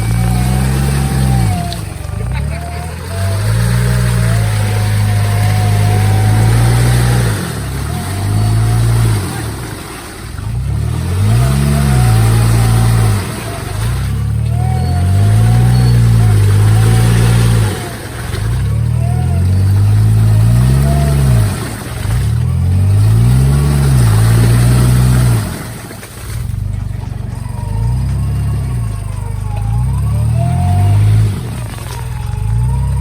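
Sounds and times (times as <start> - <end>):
off-road vehicle engine revving: 0.0 - 33.0.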